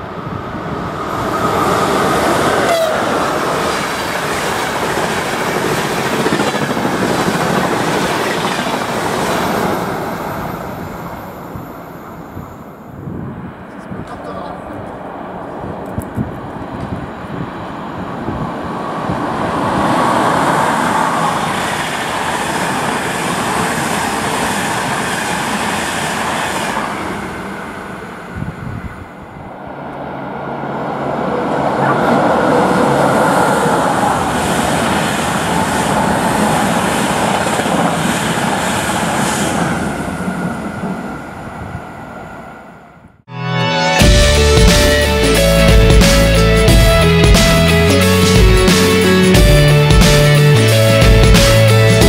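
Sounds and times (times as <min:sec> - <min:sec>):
train wheels rumbling and clattering: 0:01.1 - 0:11.7.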